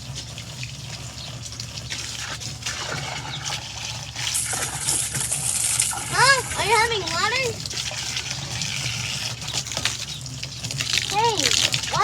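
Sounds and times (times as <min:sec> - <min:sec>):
small splashes and drips: 0:00.0 - 0:12.0
water running and splashing: 0:00.0 - 0:12.0.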